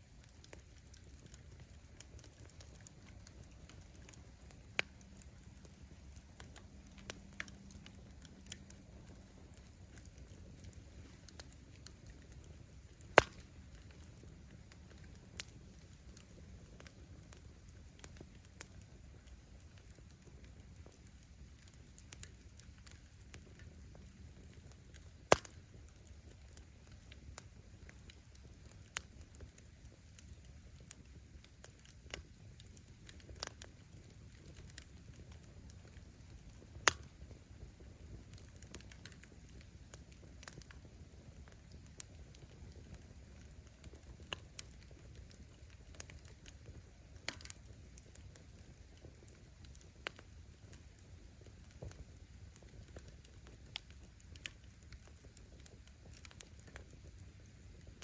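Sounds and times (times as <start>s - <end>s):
campfire flame rumble: 0.0s - 58.0s
fire crackles: 0.0s - 58.0s
wood bursting pops: 6.3s - 15.5s.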